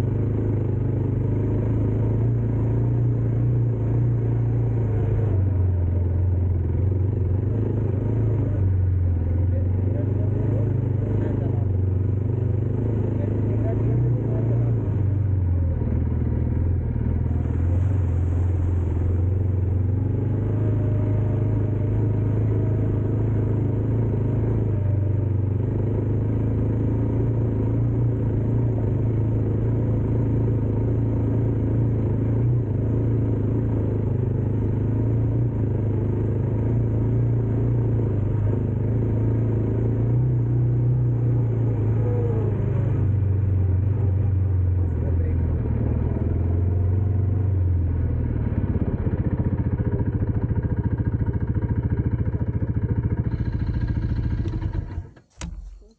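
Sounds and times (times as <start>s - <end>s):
road noise: 0.0s - 55.9s
vehicle engine running: 0.0s - 55.9s.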